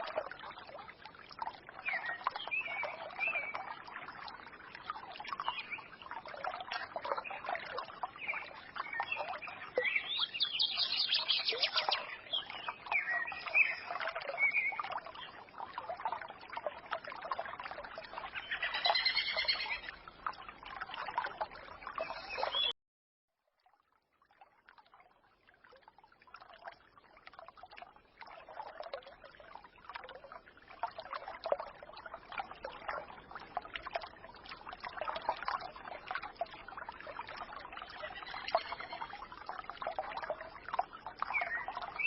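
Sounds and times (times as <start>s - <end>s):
stream babbling: 0.0s - 22.7s, 24.8s - 42.0s
songbirds chirping: 5.2s - 15.4s, 18.1s - 20.0s, 21.2s - 22.8s, 37.9s - 39.1s, 40.9s - 42.0s.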